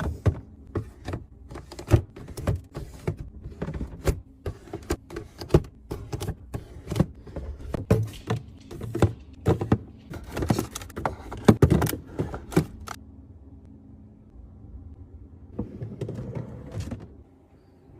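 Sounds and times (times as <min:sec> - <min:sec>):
food containers clicking and rattling: 0:00.0 - 0:13.0.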